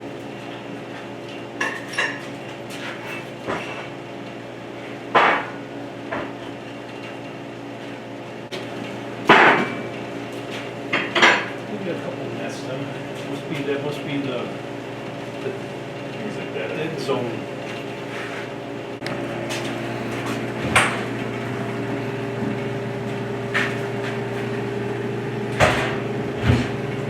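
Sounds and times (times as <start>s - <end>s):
steady low hum: 8.4s - 27.0s.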